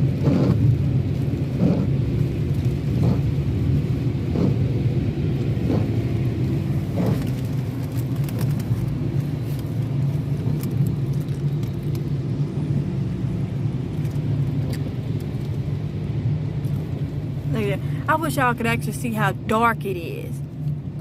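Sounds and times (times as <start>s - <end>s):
rain on car body: 0.0s - 19.6s
car interior rumble: 0.0s - 21.0s.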